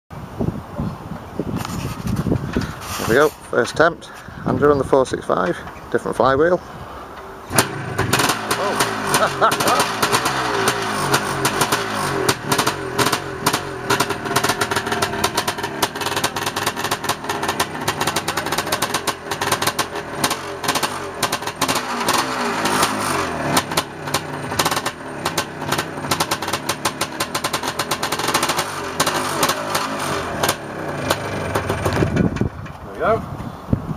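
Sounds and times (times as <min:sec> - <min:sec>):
dirt bike engine revving: 0:07.4 - 0:32.4
rapid crackling pops: 0:07.5 - 0:32.2.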